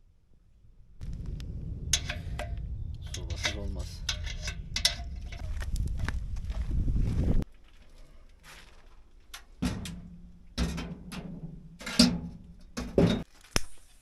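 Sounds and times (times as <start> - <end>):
metal clanks of wood stove: 1.9 - 6.1, 9.3 - 13.3.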